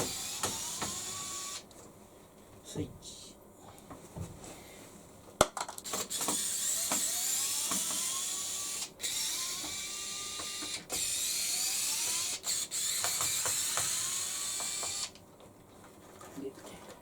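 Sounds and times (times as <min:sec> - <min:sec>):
electric screwdriver whining: 0:00.0 - 0:01.7, 0:05.8 - 0:15.2.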